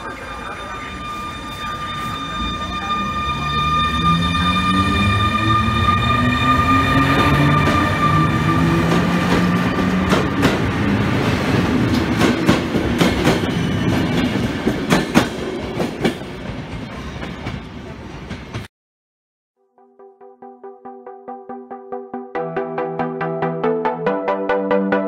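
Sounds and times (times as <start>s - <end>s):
locomotive whine rising: 0.0s - 10.2s.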